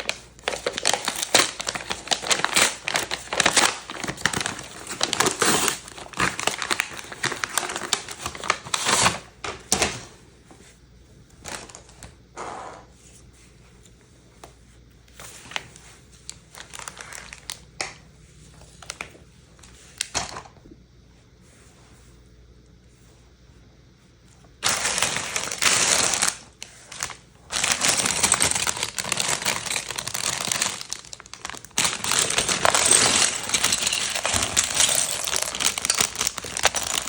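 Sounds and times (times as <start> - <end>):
packaging crinkling and rustling: 0.0 - 10.1, 11.4 - 12.1, 15.2 - 20.5, 24.6 - 37.0.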